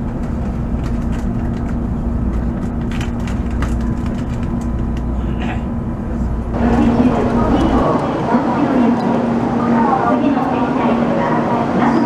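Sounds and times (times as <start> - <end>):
steady low tone: 0.0 - 11.0
loud busy noise: 0.0 - 12.0
train rumble and hum: 0.0 - 12.0.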